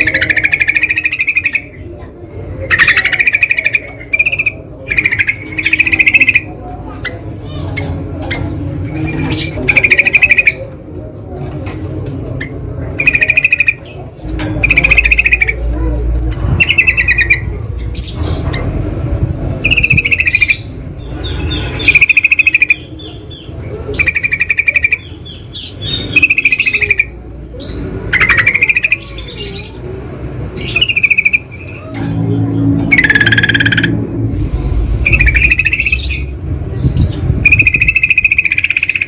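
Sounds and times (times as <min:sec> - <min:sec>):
bird chattering calls: 0:00.0 - 0:10.7, 0:12.4 - 0:29.8, 0:30.6 - 0:32.2, 0:32.8 - 0:34.1, 0:34.7 - 0:39.0
low background rumble: 0:26.8 - 0:38.6.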